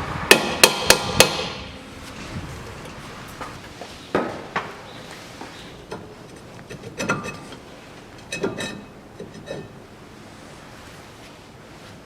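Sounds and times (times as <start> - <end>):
metal brake parts clanking: 1.8 - 3.7.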